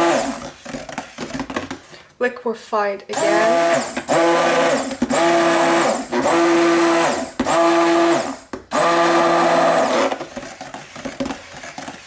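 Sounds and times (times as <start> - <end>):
stick blender motor whine: 0.0 - 0.5, 3.1 - 10.3.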